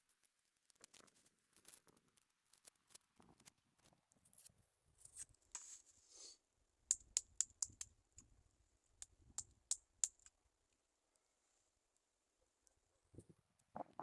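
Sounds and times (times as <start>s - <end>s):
sharp clicks and taps: 6.9s - 8.0s.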